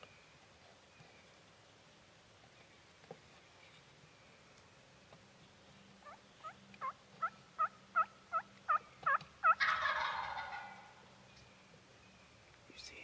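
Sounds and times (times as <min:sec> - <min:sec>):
turkey yelps: 0:06.0 - 0:11.0.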